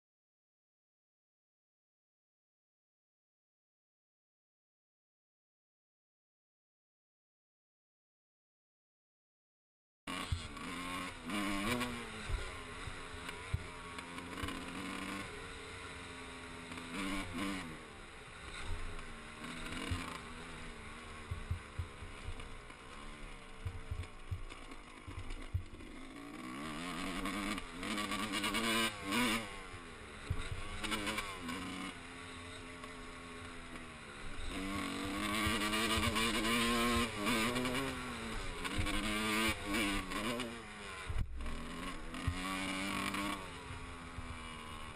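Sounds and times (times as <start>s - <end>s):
dirt bike engine revving: 10.1s - 44.9s.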